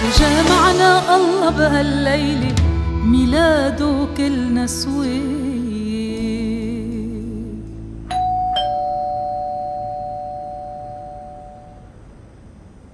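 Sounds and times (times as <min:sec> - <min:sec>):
two-tone doorbell chime: 0:08.1 - 0:11.9.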